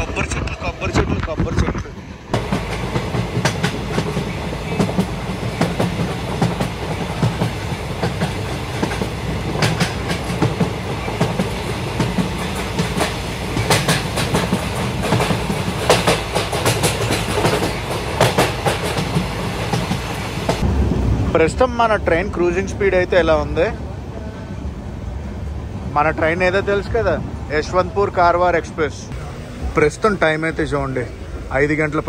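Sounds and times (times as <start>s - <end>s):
wheels clacking over rail joints: 0.0s - 20.6s
train coaches rumbling: 0.0s - 32.0s.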